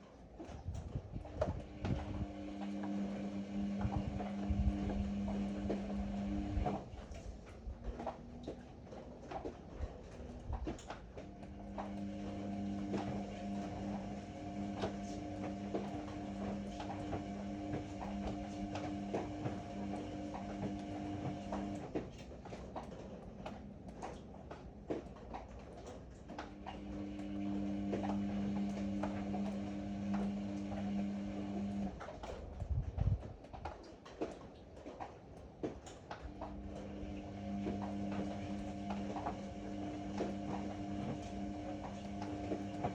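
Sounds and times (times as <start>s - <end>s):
washing machine motor humming: 0.0s - 42.9s.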